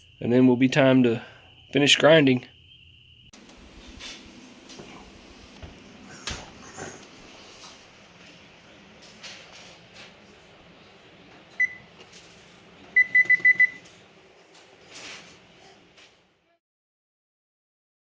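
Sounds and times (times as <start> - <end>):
faint clicks and handling noise: 3.4 - 16.3
oven control panel beeping: 3.4 - 16.3.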